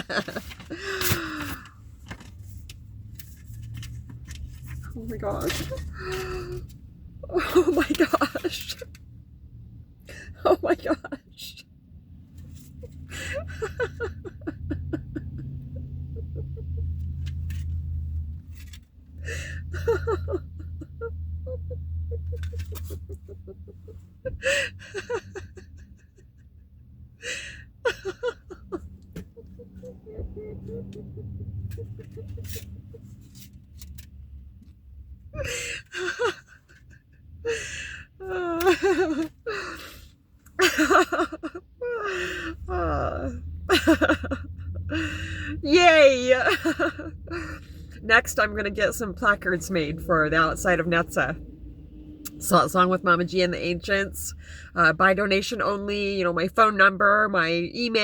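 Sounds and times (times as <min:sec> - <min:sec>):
woman laughing and crying: 0:00.0 - 0:01.7, 0:05.0 - 0:08.9, 0:10.1 - 0:11.6, 0:12.6 - 0:17.6, 0:19.2 - 0:33.2, 0:35.3 - 0:51.3
woman sobbing with joy: 0:00.0 - 0:01.7, 0:05.3 - 0:08.9, 0:10.1 - 0:11.6, 0:12.8 - 0:17.1, 0:19.2 - 0:33.0, 0:35.3 - 0:40.0, 0:40.6 - 0:48.1.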